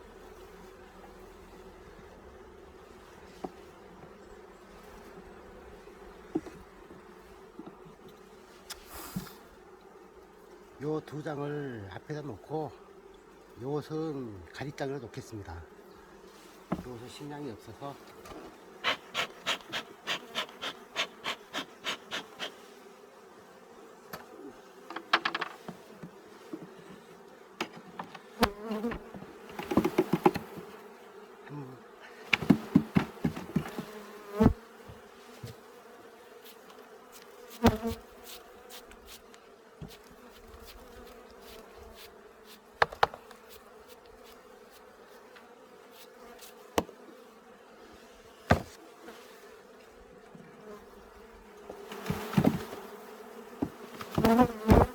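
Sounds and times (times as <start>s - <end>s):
honeybees buzzing: 0.0s - 54.9s
wooden hive frames knocking: 24.1s - 26.8s, 27.6s - 30.8s, 32.2s - 35.6s, 42.8s - 43.4s, 46.8s - 47.0s, 48.5s - 48.8s, 51.7s - 54.9s.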